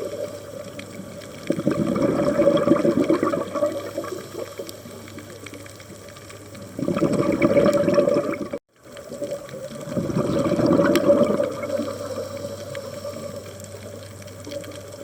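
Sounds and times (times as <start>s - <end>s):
underwater hiss: 0.0s - 8.4s, 9.0s - 15.0s
scuba regulator bubbles: 0.0s - 15.0s.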